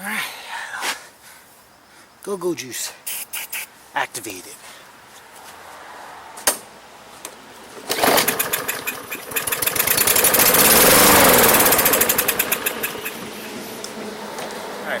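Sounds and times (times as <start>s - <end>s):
lawn mower engine running: 7.8s - 14.8s.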